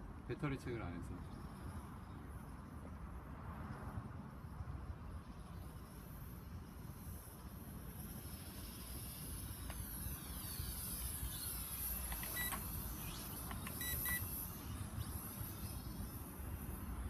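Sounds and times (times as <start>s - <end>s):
wind: 0.0s - 17.0s
short electronic beeps: 12.0s - 12.6s, 13.4s - 14.3s.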